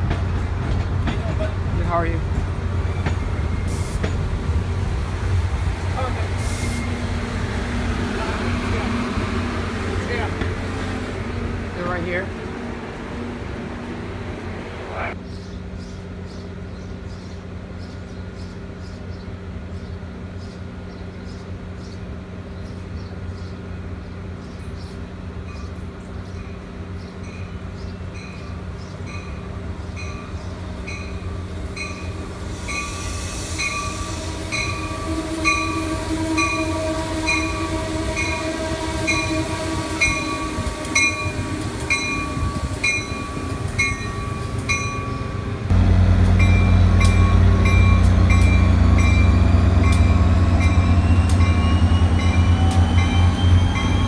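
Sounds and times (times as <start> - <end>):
train rumbling: 0.0 - 54.0
train bell ringing: 25.4 - 38.5, 40.0 - 45.6, 46.3 - 54.0.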